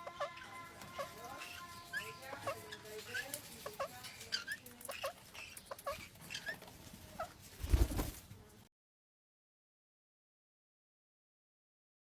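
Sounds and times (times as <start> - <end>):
parrot squeaky chirps: 0.0 - 6.6.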